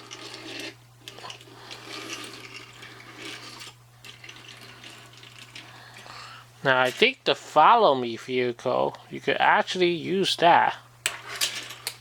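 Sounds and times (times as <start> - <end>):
toys rubbing and scraping: 0.0 - 6.1.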